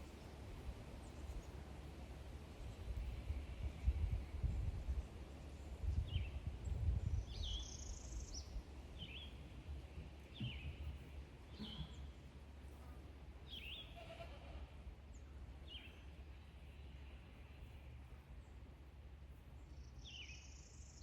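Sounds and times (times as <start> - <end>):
wind rumble: 2.4 - 9.0
bird chirping: 19.6 - 21.0.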